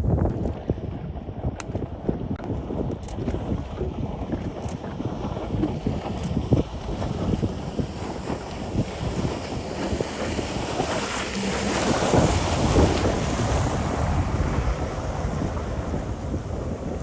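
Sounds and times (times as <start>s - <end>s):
jet ski engine: 0.0s - 17.0s
wind buffeting microphone: 0.0s - 17.0s
water rushing and splashing: 3.5s - 17.0s.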